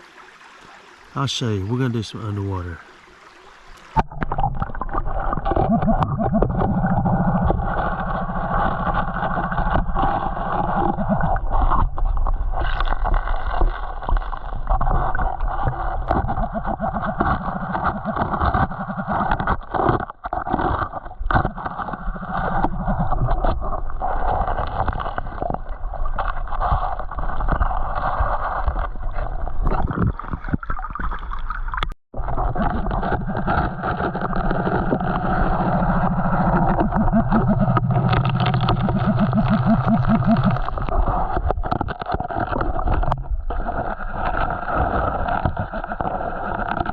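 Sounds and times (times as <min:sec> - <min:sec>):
creek water sloshing and gurgling: 0:00.0 - 0:46.9.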